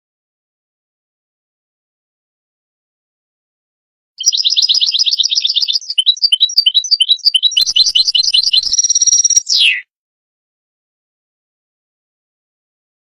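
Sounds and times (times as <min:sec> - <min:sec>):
goldfinch twittering: 0:04.2 - 0:09.8.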